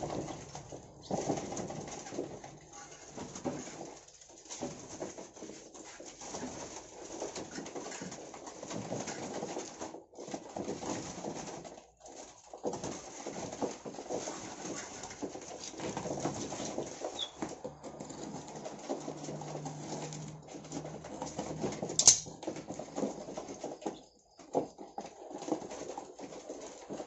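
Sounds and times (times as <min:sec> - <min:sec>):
songbirds calling: 0:00.0 - 0:02.1, 0:16.3 - 0:25.1
scratchy rustling: 0:00.0 - 0:27.0.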